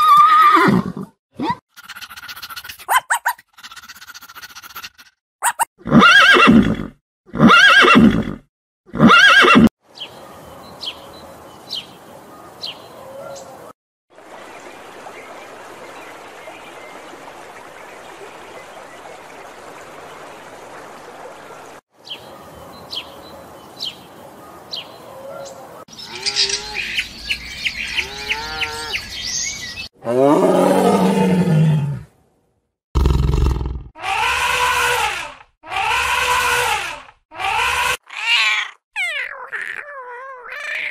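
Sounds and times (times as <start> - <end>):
stream water rushing: 14.1 - 21.8.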